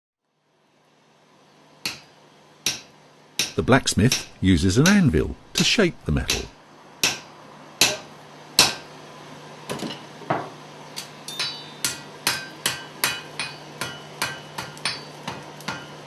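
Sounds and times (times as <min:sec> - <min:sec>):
hammer striking metal on anvil: 0:01.8 - 0:05.0, 0:05.6 - 0:08.9, 0:11.0 - 0:16.0.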